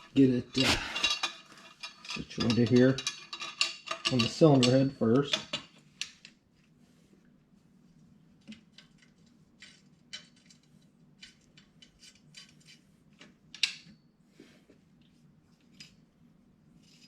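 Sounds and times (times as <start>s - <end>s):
metal parts clicking and clinking: 0.6s - 6.2s.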